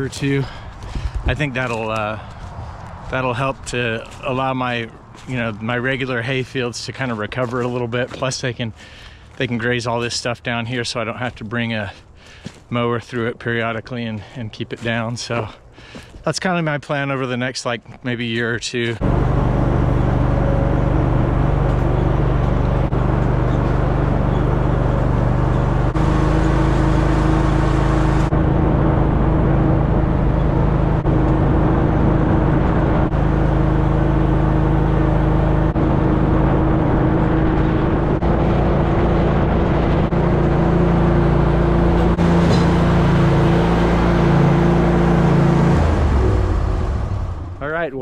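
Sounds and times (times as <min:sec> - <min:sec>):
vehicle engine running: 0:00.0 - 0:09.0, 0:19.0 - 0:47.9.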